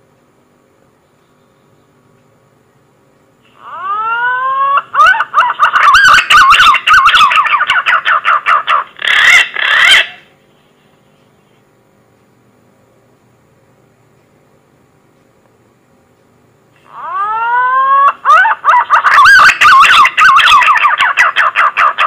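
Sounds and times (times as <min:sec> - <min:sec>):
bird call whistles: 0:03.5 - 0:08.0, 0:16.9 - 0:21.4.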